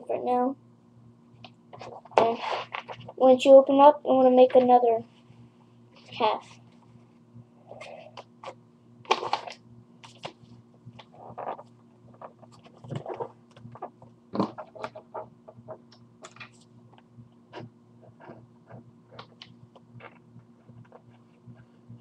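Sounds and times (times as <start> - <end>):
faint low hum: 0.0 - 22.0
paper rustling and creasing: 1.8 - 3.2, 11.0 - 16.6.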